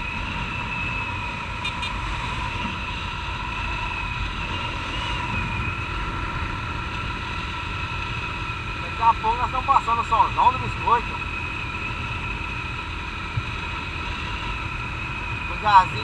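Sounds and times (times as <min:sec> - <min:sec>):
wind noise: 0:00.0 - 0:09.2
road rumble: 0:00.0 - 0:16.0.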